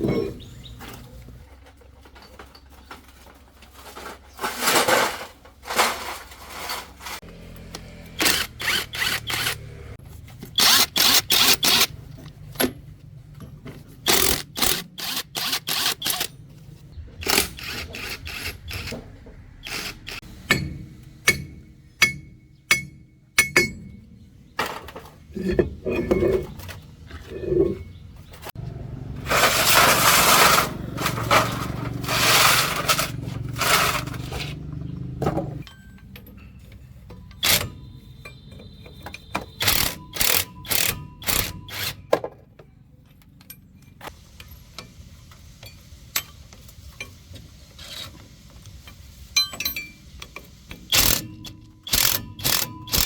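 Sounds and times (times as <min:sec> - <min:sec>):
metal clinks and knocks: 0:00.0 - 0:03.3, 0:32.6 - 0:41.7, 0:49.3 - 0:53.0.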